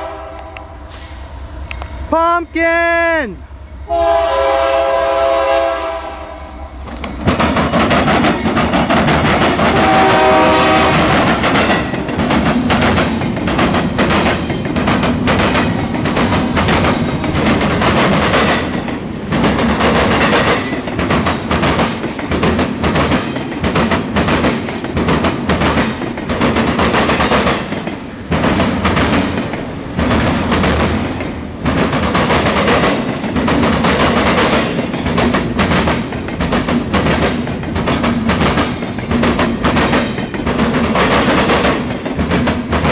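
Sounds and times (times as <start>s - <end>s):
locomotive horn: 0.0s - 0.8s, 3.9s - 6.8s, 9.7s - 11.2s
train wheels clattering on rails: 6.8s - 42.9s.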